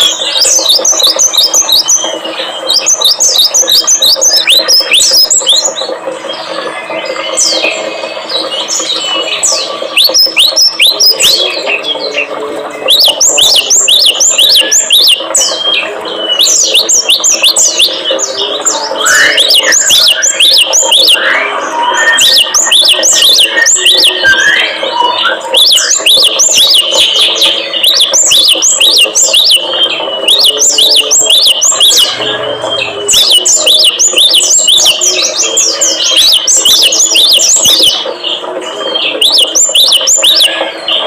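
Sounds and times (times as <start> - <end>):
small songbirds chirping: 0.0 - 41.0.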